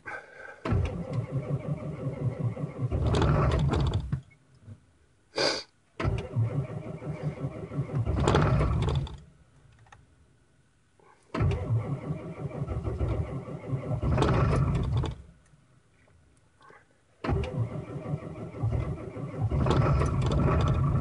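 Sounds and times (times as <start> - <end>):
engine starter cranking: 0.6 - 4.2, 6.0 - 9.3, 11.3 - 15.4, 17.2 - 21.0.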